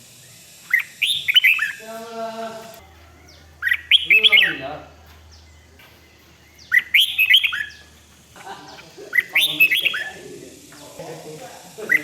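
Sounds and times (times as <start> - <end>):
bulbul singing warbled phrases: 0.0 - 12.0.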